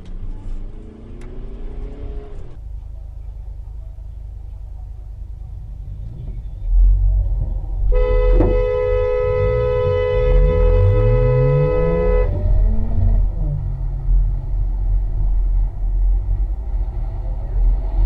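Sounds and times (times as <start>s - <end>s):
low vehicle rumble: 0.0s - 18.0s
car horn held: 7.9s - 12.4s.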